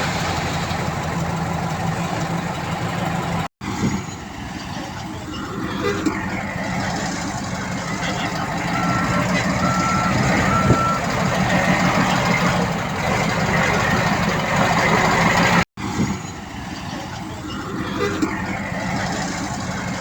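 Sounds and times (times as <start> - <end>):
diesel machinery running: 0.0 - 20.0
reversing alarm beep: 8.4 - 11.2.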